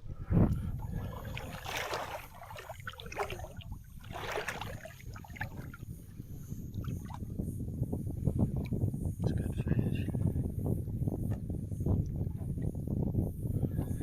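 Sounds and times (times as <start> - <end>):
water splashing around boat: 0.4 - 7.3.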